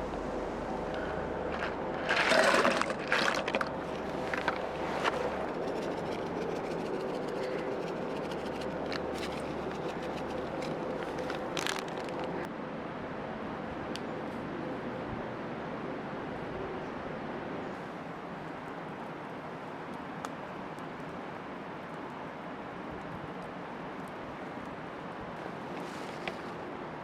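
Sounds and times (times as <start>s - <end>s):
campfire crackling: 0.0s - 12.5s, 17.9s - 26.7s
scraping rustles: 25.4s - 26.6s.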